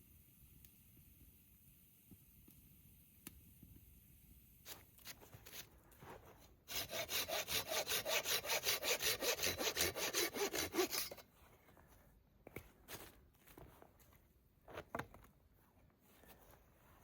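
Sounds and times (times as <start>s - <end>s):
hand saw cutting wood: 6.7s - 11.2s.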